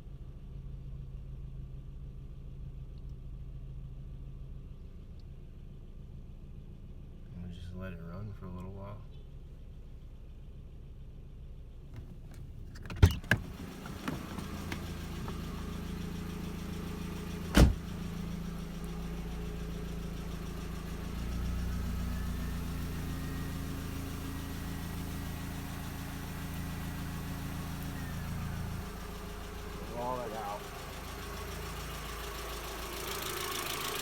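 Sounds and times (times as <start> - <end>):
car engine idling: 0.0 - 34.0
engine knocks: 13.2 - 19.0.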